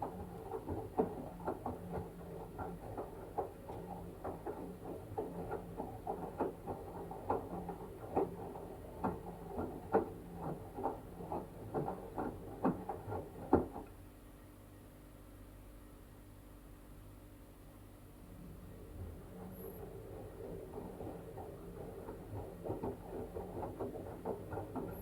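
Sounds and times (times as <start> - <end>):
low motor hum: 18.2 - 25.0.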